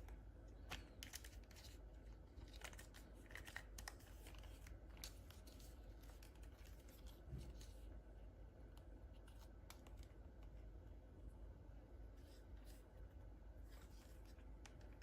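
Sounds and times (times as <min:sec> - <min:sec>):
toy packaging clicks and rustles: 0:00.5 - 0:07.9.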